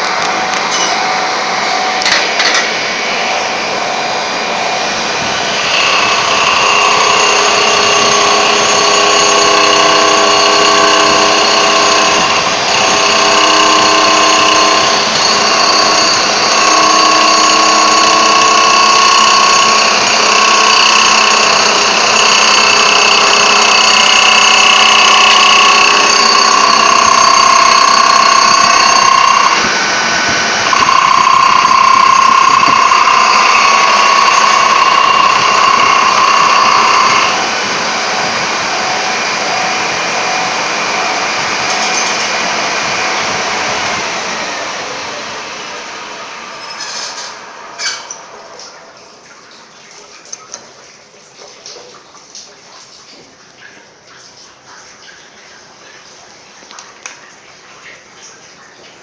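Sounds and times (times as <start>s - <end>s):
power tool high whine: 0.0s - 45.2s.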